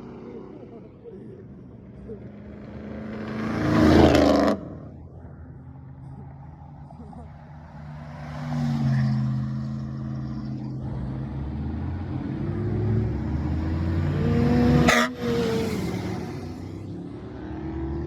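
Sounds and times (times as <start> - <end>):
car engine revving: 2.2 - 5.1, 7.0 - 18.0.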